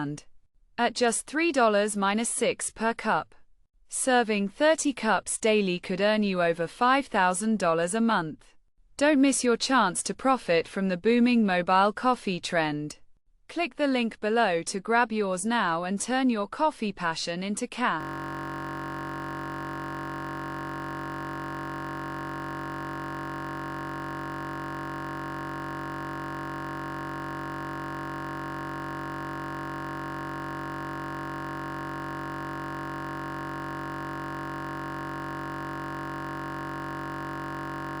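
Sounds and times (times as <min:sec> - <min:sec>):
electronic drone chord: 0:18.0 - 0:38.0.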